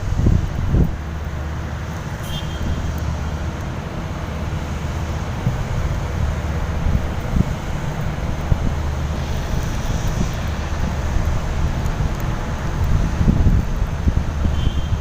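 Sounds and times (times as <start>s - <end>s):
wind on microphone: 0.0s - 1.3s, 5.2s - 15.0s
low engine rumble: 0.0s - 15.0s.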